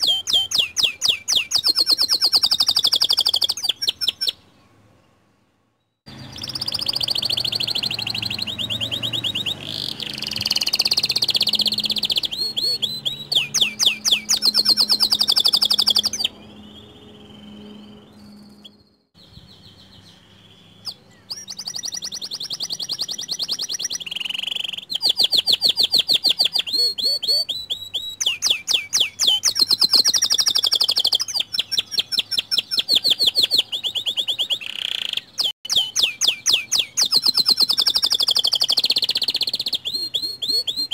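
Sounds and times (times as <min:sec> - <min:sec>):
canary singing trills: 0:00.0 - 0:05.2, 0:05.8 - 0:40.9.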